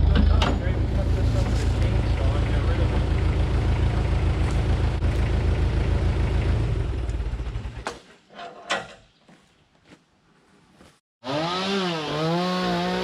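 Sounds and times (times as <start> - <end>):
heavy engine idling: 0.0 - 7.8.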